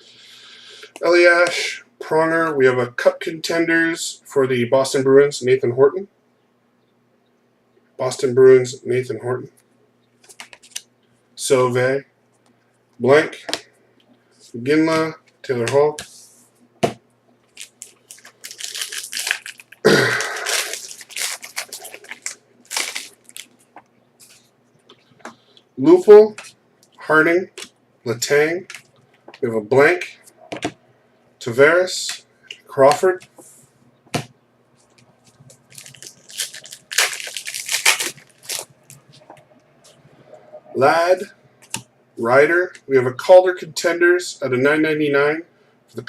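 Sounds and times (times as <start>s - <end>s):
card pack wrapper crinkling: 17.4s - 24.4s, 35.3s - 39.1s.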